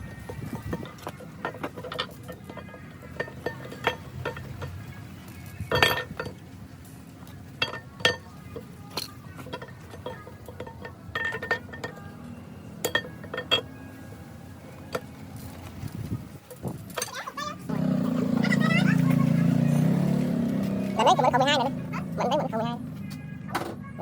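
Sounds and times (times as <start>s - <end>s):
metal tools clinking: 0.0s - 14.0s.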